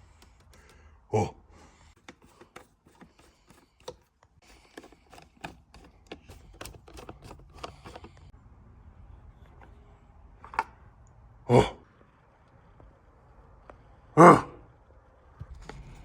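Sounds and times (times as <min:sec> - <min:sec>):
small hard parts clicking: 0:00.0 - 0:00.9, 0:01.9 - 0:08.3.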